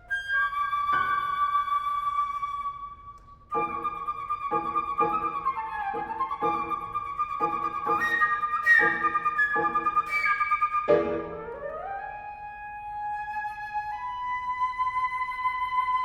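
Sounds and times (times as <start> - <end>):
flute: 0.0 - 16.0
piano chords: 3.5 - 12.0.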